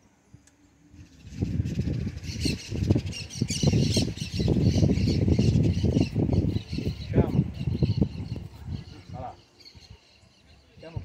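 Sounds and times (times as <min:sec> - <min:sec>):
birds squawking: 0:01.5 - 0:10.8.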